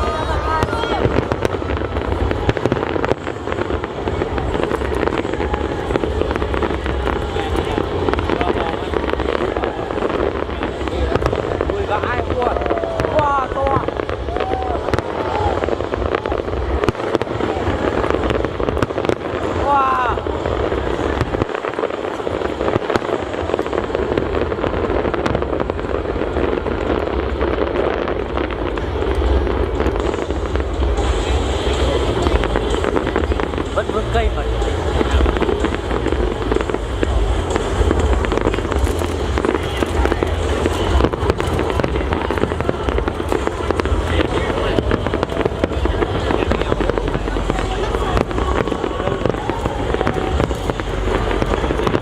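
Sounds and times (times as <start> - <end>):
fireworks crackling: 0.0 - 52.0
low rumble: 22.0 - 52.0.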